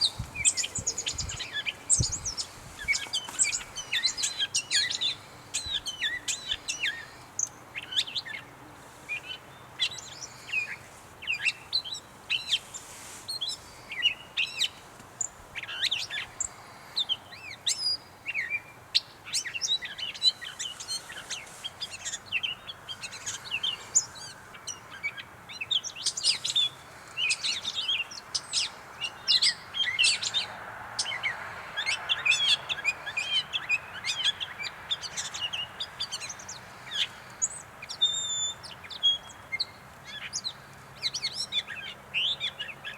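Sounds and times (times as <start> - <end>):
catbird singing: 0.0 - 8.4.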